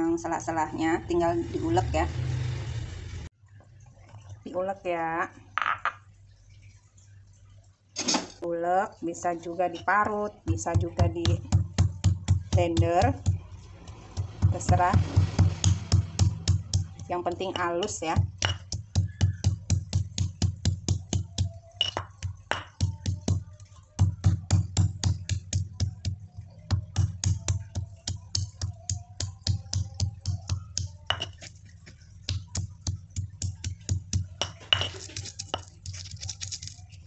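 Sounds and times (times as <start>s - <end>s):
pestle pounding in a mortar: 10.4s - 36.8s.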